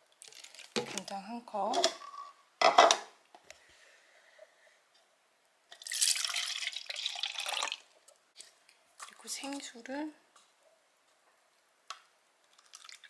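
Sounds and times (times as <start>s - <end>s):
liquid pouring and splashing: 0.2s - 1.1s, 5.7s - 9.7s, 12.5s - 13.0s.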